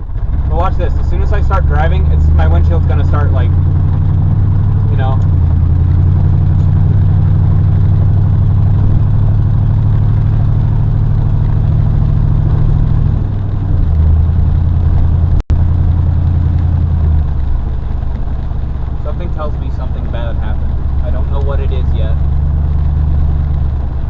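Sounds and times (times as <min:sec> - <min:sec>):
pickup truck engine humming: 0:00.0 - 0:24.0.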